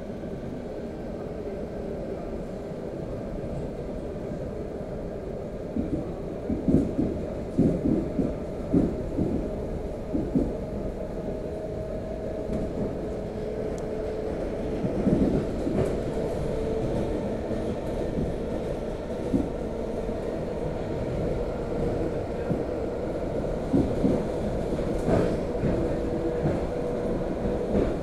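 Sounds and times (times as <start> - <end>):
train low rumble: 0.0 - 28.0.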